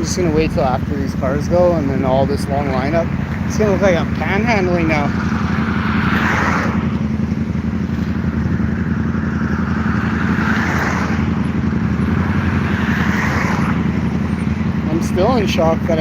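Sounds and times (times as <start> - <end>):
road traffic rumble: 0.0 - 16.0
vehicles passing: 0.0 - 16.0.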